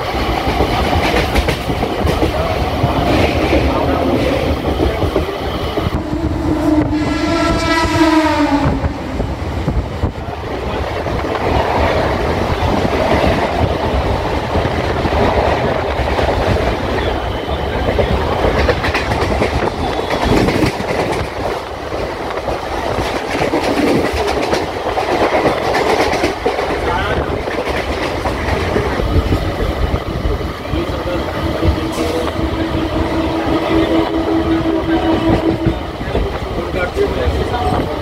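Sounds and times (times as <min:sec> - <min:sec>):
train wheel rumble and clatter: 0:00.0 - 0:38.0
train horn: 0:05.6 - 0:09.1, 0:31.9 - 0:35.9.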